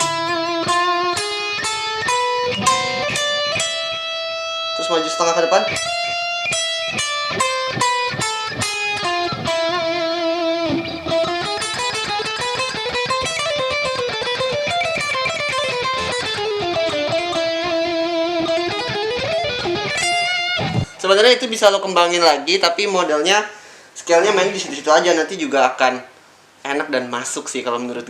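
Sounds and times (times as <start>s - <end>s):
electric guitar licks: 0.0s - 21.0s.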